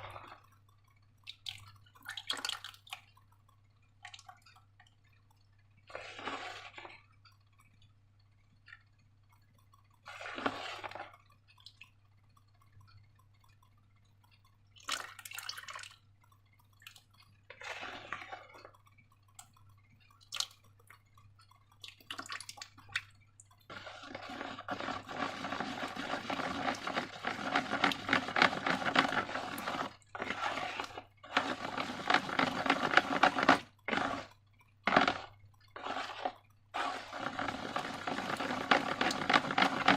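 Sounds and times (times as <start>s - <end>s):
slime squelching: 0.0s - 8.0s, 8.6s - 39.9s
small clicks: 0.0s - 39.9s.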